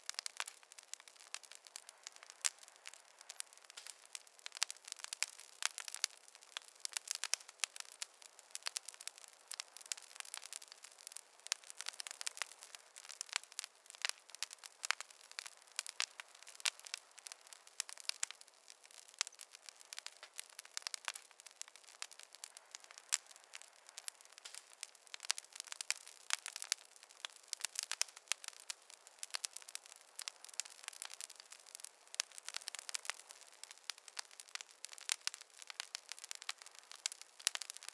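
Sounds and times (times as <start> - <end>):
campfire crackling: 0.0 - 37.9.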